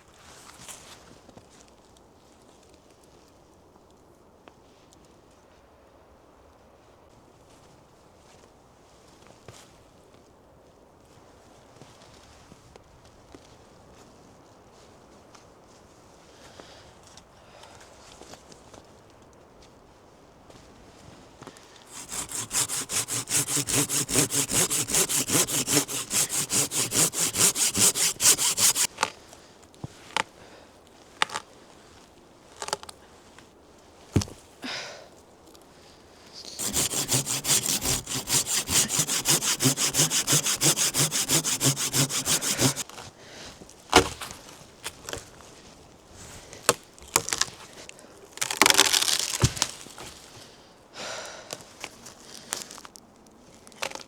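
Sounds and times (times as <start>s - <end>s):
hand saw cutting wood: 21.9s - 28.9s, 36.5s - 42.9s, 44.0s - 44.4s, 48.6s - 49.7s
rustling scrape: 21.9s - 28.9s, 36.5s - 43.0s.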